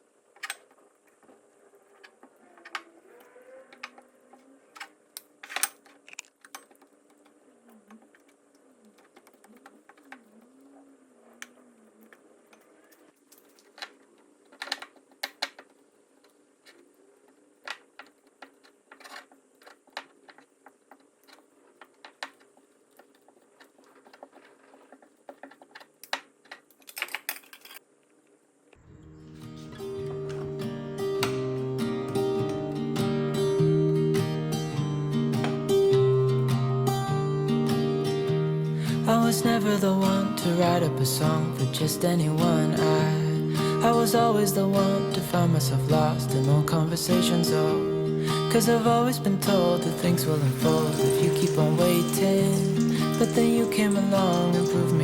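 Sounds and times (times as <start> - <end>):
utensils and dishes clicking: 48.4 - 55.0.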